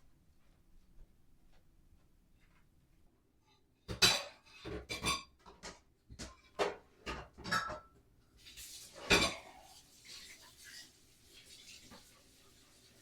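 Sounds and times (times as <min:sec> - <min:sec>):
dishes and cutlery clattering: 0:03.9 - 0:08.0, 0:08.9 - 0:10.8.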